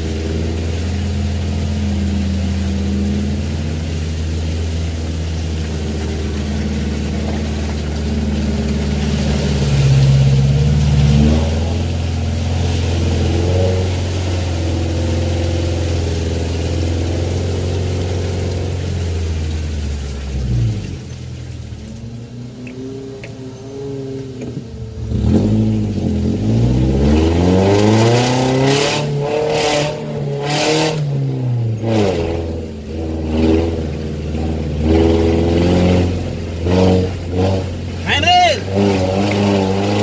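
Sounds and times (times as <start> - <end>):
off-road vehicle engine climbing: 0.0 - 40.0.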